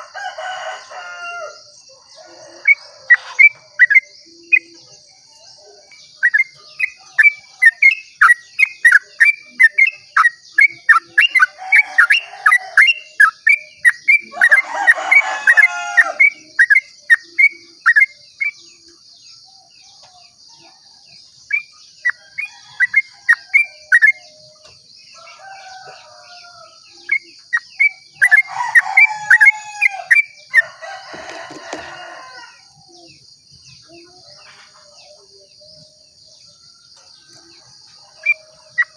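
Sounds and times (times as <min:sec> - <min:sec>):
high insect drone: 0:00.0 - 0:38.9
bulbul song: 0:02.1 - 0:19.0.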